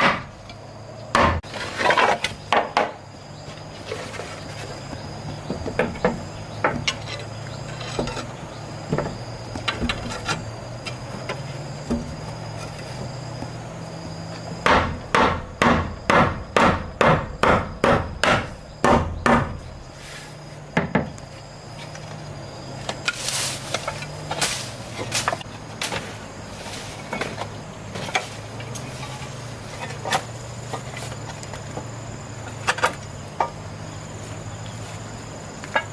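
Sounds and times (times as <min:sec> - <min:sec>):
hammer striking wood: 0:00.0 - 0:00.3, 0:01.1 - 0:01.4, 0:02.5 - 0:03.0, 0:14.6 - 0:19.7.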